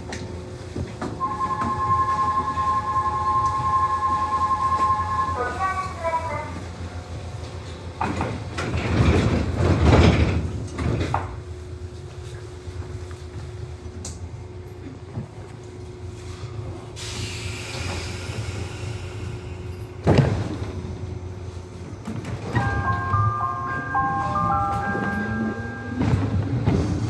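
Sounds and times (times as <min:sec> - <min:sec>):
steady train hum: 0:00.0 - 0:27.0
air hiss: 0:17.0 - 0:19.7
train door slam: 0:19.9 - 0:20.9.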